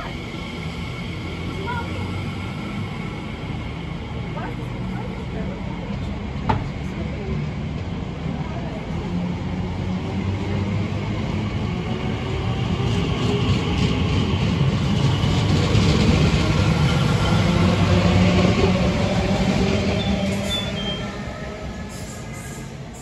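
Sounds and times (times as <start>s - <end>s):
electric train hum: 0.0s - 23.0s
rumbling train wheels: 0.0s - 23.0s.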